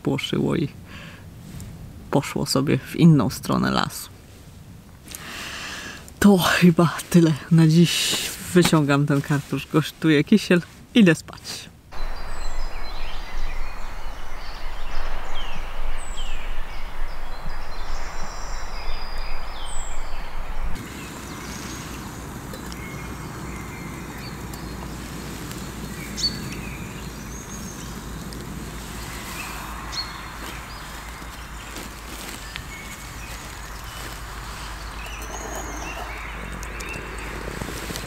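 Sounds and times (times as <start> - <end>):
birds chirping and calling: 12.0 - 38.0
steady rushing noise: 12.0 - 38.0.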